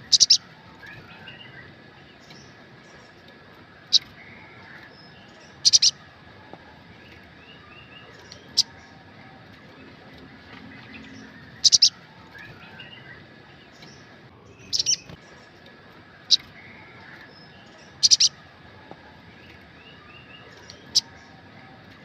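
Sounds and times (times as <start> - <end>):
bird chirping sharply: 0.0 - 2.5, 10.9 - 15.2, 16.3 - 18.4
faint bird twittering: 0.0 - 22.0.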